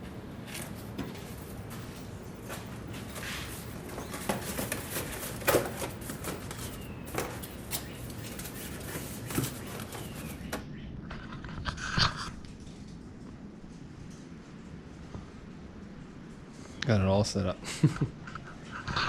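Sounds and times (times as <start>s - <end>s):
cardboard rustling: 0.5s - 10.6s.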